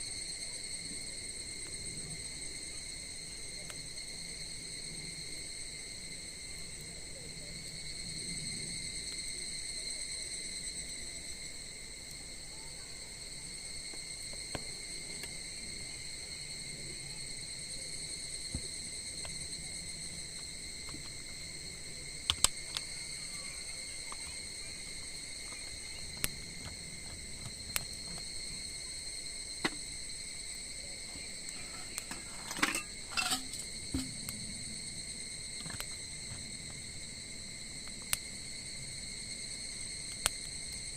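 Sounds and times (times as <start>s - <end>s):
crickets chirring: 0.0s - 40.9s
sharp clicks and crackles: 22.3s - 22.9s.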